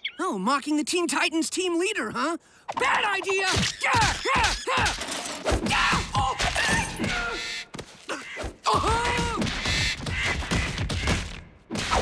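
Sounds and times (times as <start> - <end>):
cartoon cries and squawks: 2.8 - 5.1, 5.7 - 7.6, 8.2 - 9.5
cartoon thumps and knocks: 3.4 - 12.0.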